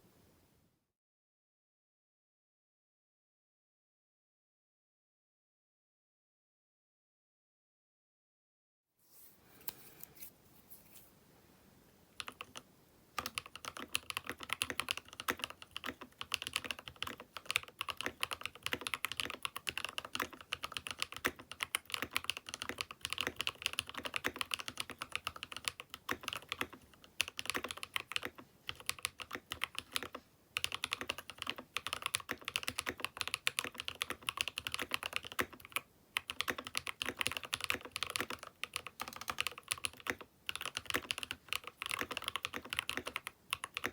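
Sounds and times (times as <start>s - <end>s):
mechanical keyboard typing: 12.2s - 12.6s, 13.2s - 43.9s.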